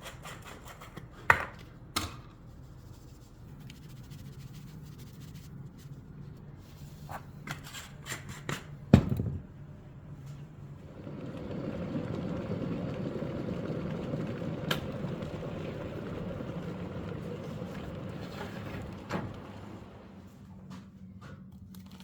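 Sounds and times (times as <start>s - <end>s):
faint steady hum: 8.9s - 21.8s.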